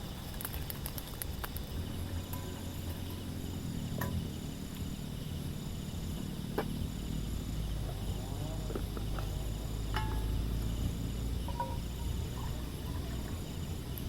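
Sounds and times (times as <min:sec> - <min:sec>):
insects chirping trills: 0:00.0 - 0:14.0
low rumble: 0:00.0 - 0:14.0
sharp clicks: 0:00.3 - 0:01.8.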